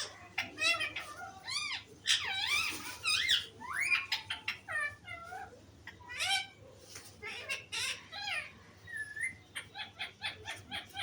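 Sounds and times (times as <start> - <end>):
parrot chattering: 7.2 - 11.0.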